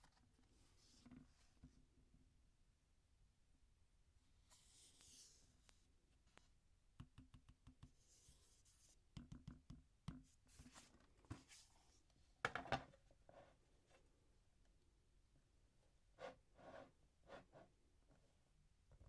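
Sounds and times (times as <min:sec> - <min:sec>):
hands tapping a tablet: 0:07.0 - 0:08.0, 0:09.1 - 0:10.2
light rubbing on a tablet: 0:16.2 - 0:17.7.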